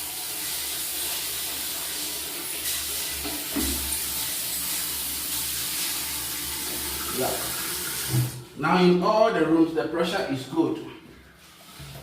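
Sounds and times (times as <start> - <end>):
tap water rushing into sink: 0.0 - 8.5, 11.2 - 12.0.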